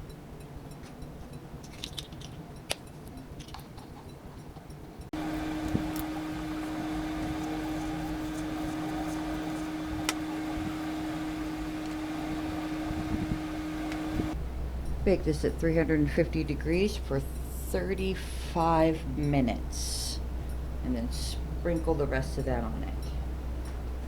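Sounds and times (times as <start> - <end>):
electrical appliance hum: 0.0 - 24.0.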